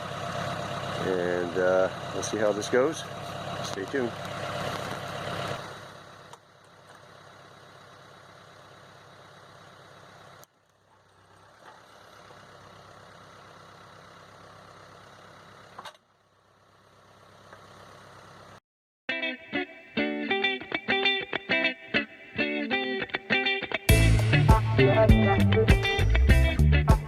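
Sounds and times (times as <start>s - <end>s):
tractor diesel engine running: 0.0s - 18.6s
guitar music: 19.1s - 27.0s.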